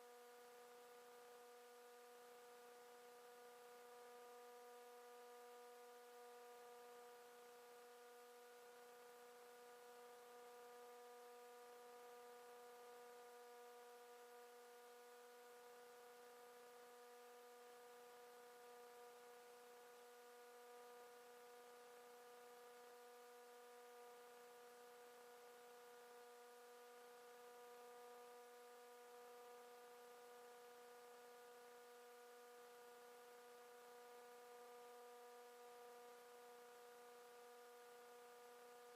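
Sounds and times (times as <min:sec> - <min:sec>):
faint electrical hum: 0:00.0 - 0:38.9.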